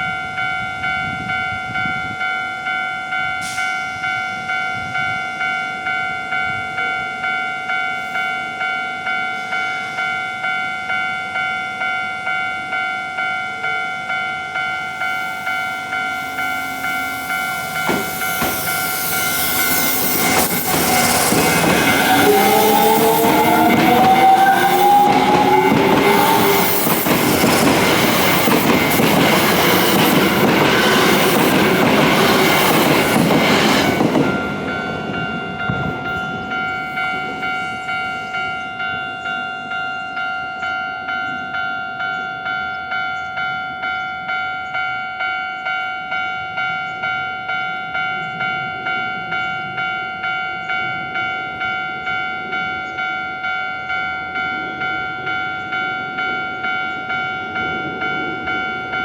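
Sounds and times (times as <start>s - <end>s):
electric train passing: 0.0s - 59.0s
level-crossing warning bell ringing: 0.0s - 59.0s
train motor whine: 14.9s - 34.9s.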